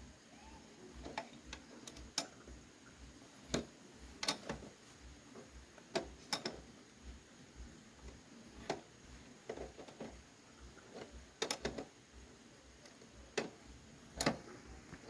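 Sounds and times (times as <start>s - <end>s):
tools clicking and tapping: 3.5s - 4.7s, 5.9s - 6.7s, 10.9s - 11.9s.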